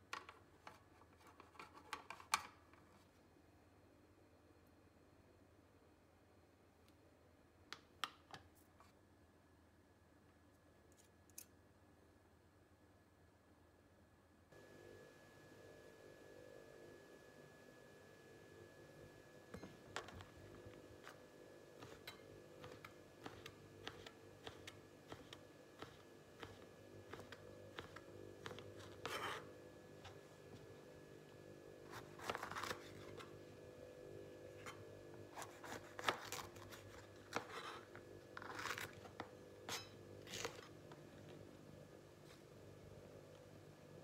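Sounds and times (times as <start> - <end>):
faint steady hum: 0.0 - 44.0
knife slicing pepper: 35.3 - 38.9.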